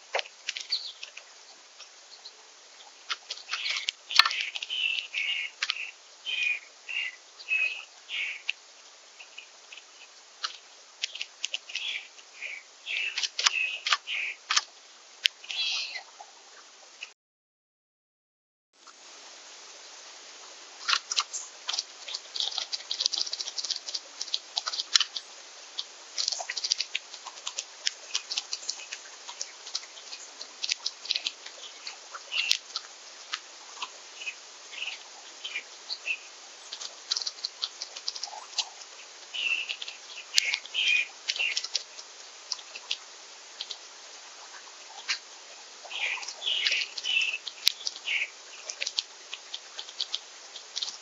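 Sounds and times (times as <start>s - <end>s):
birds pecking seeds: 0.0s - 17.1s, 18.8s - 51.0s
steady light hiss: 0.0s - 17.1s, 18.8s - 51.0s.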